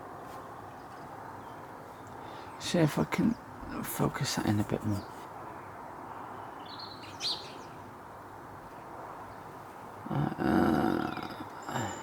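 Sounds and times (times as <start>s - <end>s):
small bird chirping: 4.8s - 7.8s.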